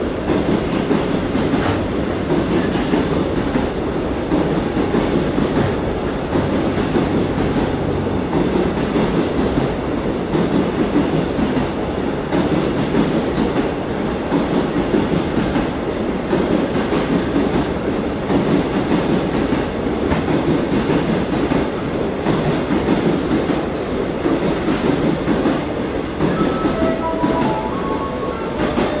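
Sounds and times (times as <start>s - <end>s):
freight train rumbling past: 0.0s - 29.0s
faint short high tones: 26.2s - 29.0s.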